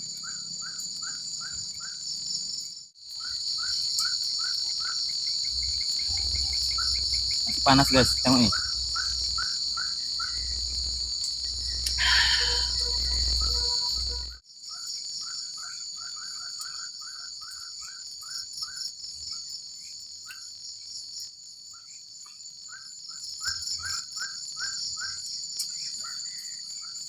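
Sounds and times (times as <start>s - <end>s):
high-pitched insect drone: 0.0s - 19.4s.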